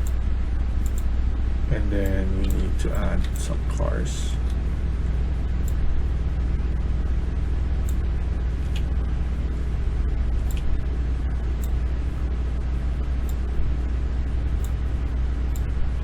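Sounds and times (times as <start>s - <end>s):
low background hum: 0.0s - 16.0s
computer mouse clicking: 0.8s - 1.1s, 10.4s - 10.8s, 14.6s - 15.8s.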